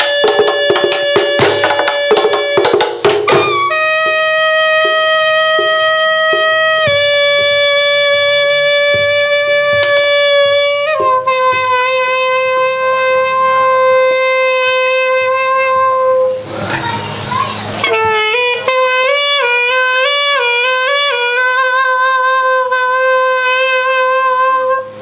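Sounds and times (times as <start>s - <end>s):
soft knocks keeping a beat: 0.0s - 13.8s, 17.8s - 21.2s
wind instrument long notes: 0.0s - 25.0s.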